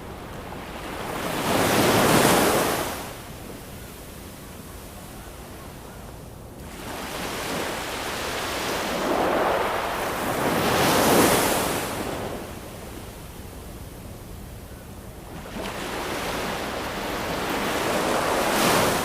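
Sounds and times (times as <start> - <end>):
ocean waves breaking: 6.7 - 12.5, 15.3 - 19.0.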